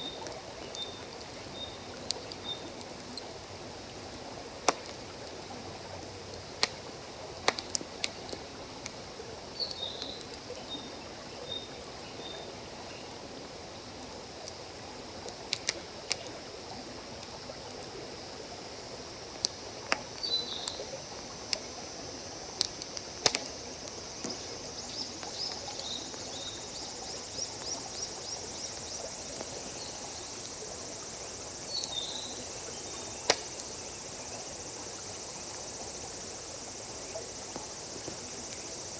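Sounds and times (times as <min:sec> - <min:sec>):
campfire crackling and popping: 0:00.0 - 0:09.1, 0:15.2 - 0:16.4, 0:19.4 - 0:21.7, 0:22.4 - 0:26.3, 0:27.2 - 0:38.7
insect ticking trill: 0:22.5 - 0:38.9.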